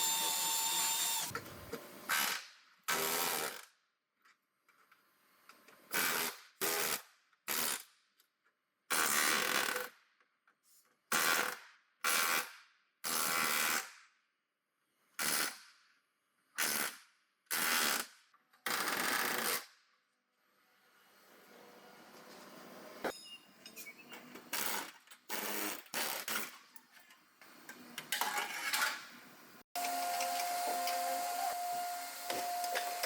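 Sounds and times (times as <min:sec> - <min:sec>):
power tool bursts: 0:00.0 - 0:01.3.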